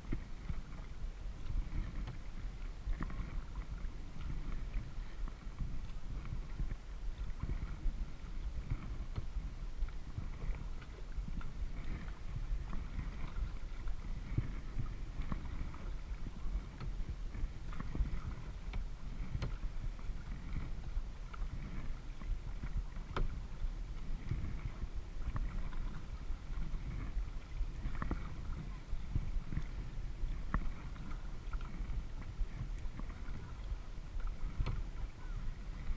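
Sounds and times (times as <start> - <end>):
water splashing against kayak: 0.0 - 35.9.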